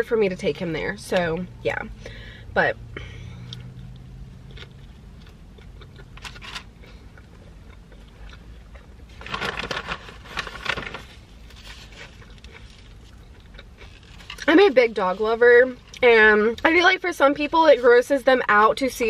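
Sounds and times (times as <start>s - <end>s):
person chewing crunchy food: 3.5s - 9.3s, 11.5s - 14.5s.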